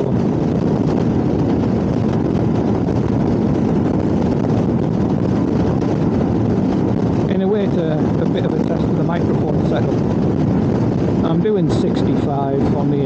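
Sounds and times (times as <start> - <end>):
motorcycle engine drone: 0.0 - 13.0
wind and road rush: 0.0 - 13.0.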